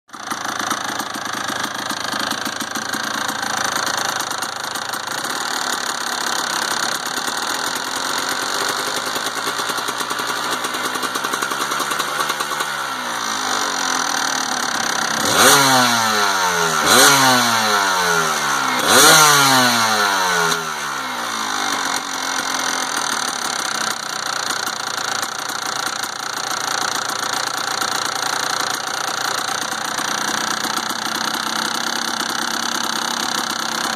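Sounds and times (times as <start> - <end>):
motorcycle engine idling with rattle: 0.1 - 33.9
engine revving: 1.4 - 24.3.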